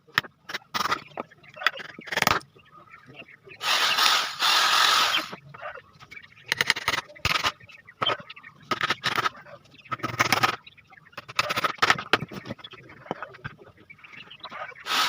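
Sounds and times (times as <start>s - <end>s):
short scraping strokes: 3.6s - 5.4s.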